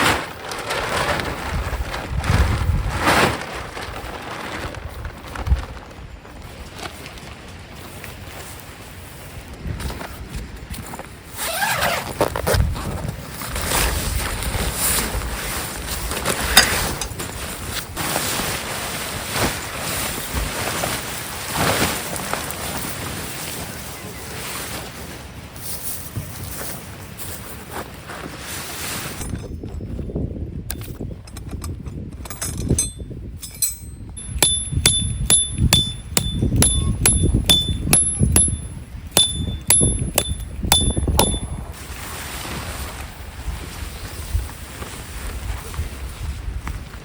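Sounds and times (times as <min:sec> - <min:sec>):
wind buffeting microphone: 0:01.0 - 0:07.8, 0:29.2 - 0:41.8, 0:43.1 - 0:47.0
light metallic clinks: 0:32.2 - 0:41.7
ringing metal-on-metal strikes: 0:32.6 - 0:41.7.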